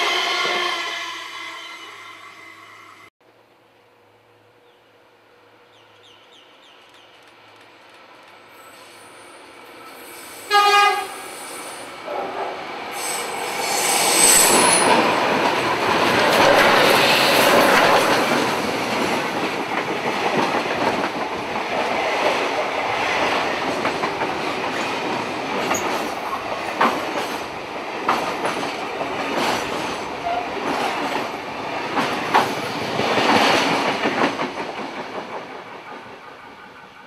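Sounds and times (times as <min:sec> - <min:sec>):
high wheel squeal: 0:00.0 - 0:03.1, 0:13.0 - 0:15.0
locomotive horn blast: 0:00.0 - 0:03.1, 0:10.5 - 0:11.3
wheels rumbling on rail: 0:06.5 - 0:37.0
rail-joint clicks: 0:06.8 - 0:09.2, 0:23.7 - 0:36.4.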